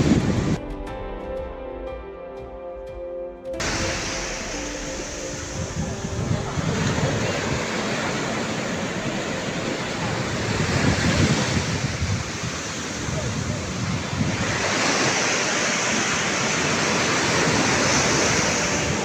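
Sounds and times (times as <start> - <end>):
sea surf washing onto beach: 0.0 - 0.6, 3.6 - 19.0
wind rumbling on microphone: 0.0 - 0.7, 3.6 - 19.0
background music: 0.0 - 10.4, 14.5 - 19.0.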